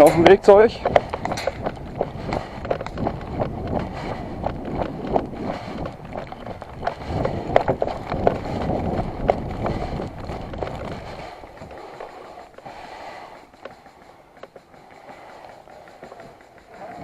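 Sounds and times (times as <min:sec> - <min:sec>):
footsteps: 0:00.0 - 0:17.0
gear rattling: 0:00.0 - 0:17.0
low microphone rumble: 0:00.8 - 0:12.6.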